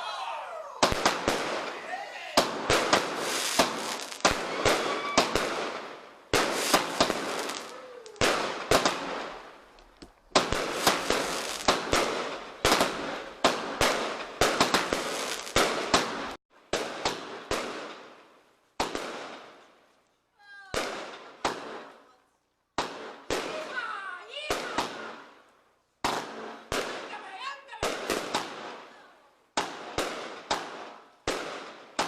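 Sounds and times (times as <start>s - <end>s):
firework bangs: 0.8s - 18.2s, 18.8s - 19.7s, 20.7s - 22.0s, 22.7s - 25.3s, 26.0s - 32.0s
firework crackling hiss: 2.4s - 9.4s, 10.3s - 16.4s.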